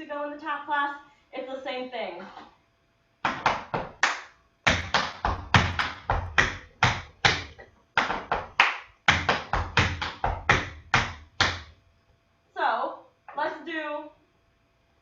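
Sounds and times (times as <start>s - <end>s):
tap shoes striking floor: 3.2s - 11.7s.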